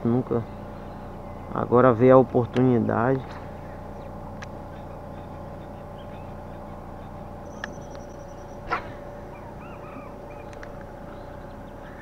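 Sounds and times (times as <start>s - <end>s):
steady low hum: 0.0s - 12.0s
bird calls: 0.4s - 2.0s, 2.6s - 12.0s.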